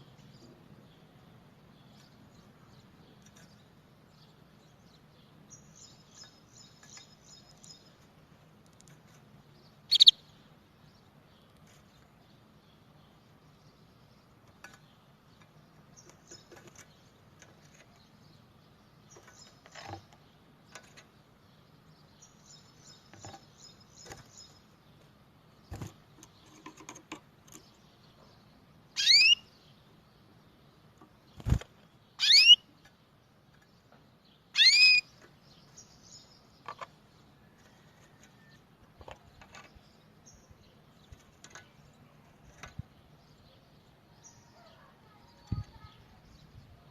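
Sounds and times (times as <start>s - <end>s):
canary chirps and trills: 0.0s - 46.9s
loud downward sweeping bird calls: 9.9s - 10.2s, 29.0s - 29.5s, 32.2s - 32.7s, 34.6s - 35.1s.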